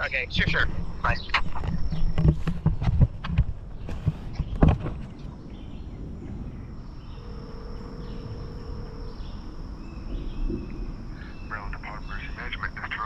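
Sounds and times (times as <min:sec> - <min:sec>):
high insect drone: 0:05.4 - 0:13.0.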